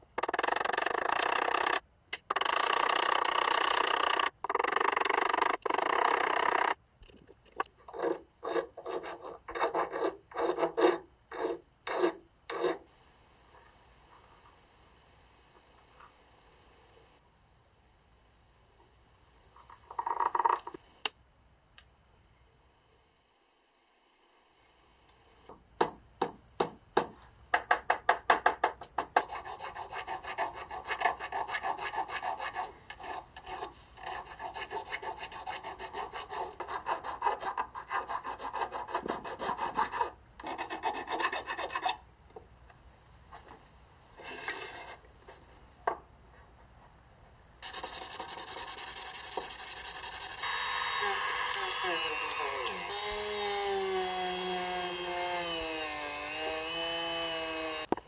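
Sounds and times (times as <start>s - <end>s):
hand file rasping on wood: 7.9s - 12.8s, 29.2s - 42.0s, 47.6s - 55.8s
sanding wood: 8.0s - 12.8s, 29.2s - 42.0s, 47.6s - 57.9s.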